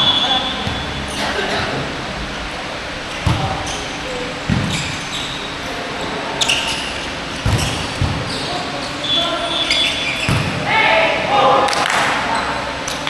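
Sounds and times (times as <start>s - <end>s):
shoe squeak: 0.0s - 2.3s, 3.0s - 10.5s
basketball bouncing on court: 0.0s - 10.7s.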